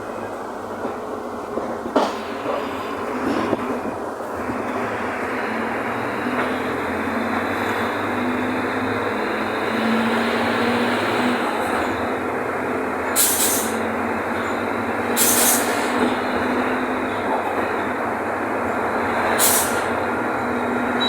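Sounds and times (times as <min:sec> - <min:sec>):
bus diesel engine running: 0:00.0 - 0:21.0
air hisses: 0:13.2 - 0:13.8, 0:15.2 - 0:15.9, 0:19.4 - 0:19.9.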